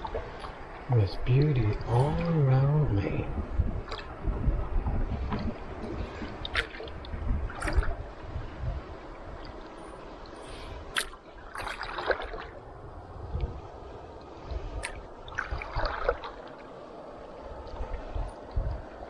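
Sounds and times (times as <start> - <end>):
canoe paddle strokes in water: 0.0 - 2.4, 3.3 - 12.7, 13.4 - 19.0.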